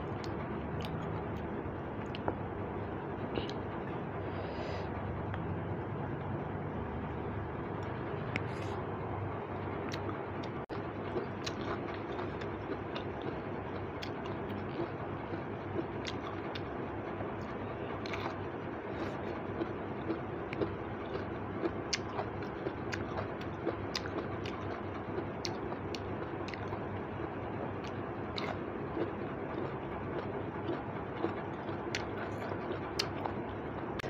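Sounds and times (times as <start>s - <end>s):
person chewing: 0.1s - 2.4s, 7.8s - 8.9s, 9.7s - 16.7s, 17.4s - 26.9s, 27.8s - 34.0s.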